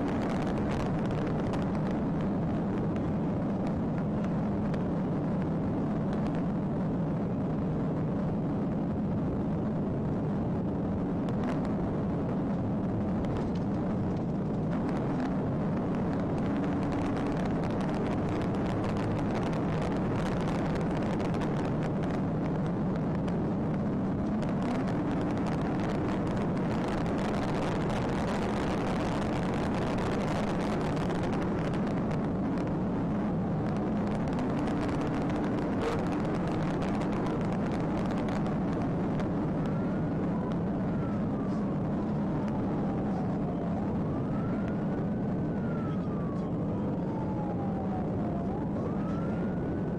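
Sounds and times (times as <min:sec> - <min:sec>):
vehicle engine and road noise: 0:00.0 - 0:49.9
police siren wailing: 0:24.1 - 0:49.9.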